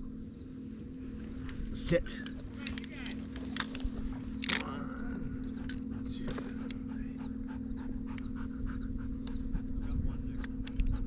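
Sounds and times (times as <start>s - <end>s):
insect drone: 0.0s - 11.0s
faint clicks and rustles: 1.2s - 4.8s.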